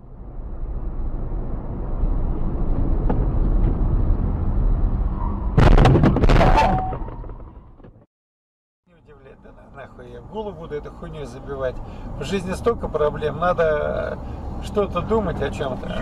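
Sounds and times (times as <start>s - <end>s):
car road and engine rumble: 0.0s - 6.5s, 8.9s - 16.0s
vehicle crash with clatter: 5.6s - 8.0s.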